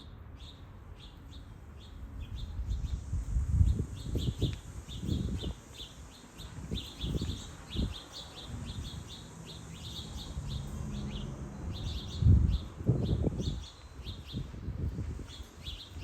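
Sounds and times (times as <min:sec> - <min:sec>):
small songbirds chirping: 0:00.0 - 0:16.0
low microphone rumbles: 0:10.4 - 0:16.0.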